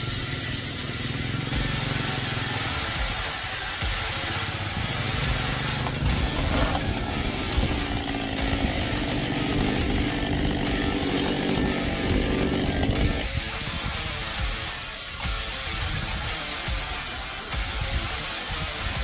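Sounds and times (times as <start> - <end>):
chainsaw engine whining: 0.0 - 19.0.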